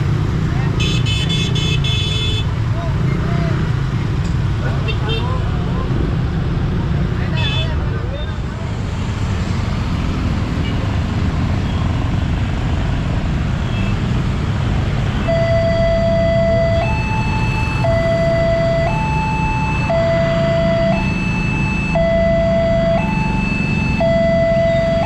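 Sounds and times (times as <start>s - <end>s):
low traffic rumble: 0.0s - 25.0s
level-crossing alarm two tones: 15.3s - 25.0s.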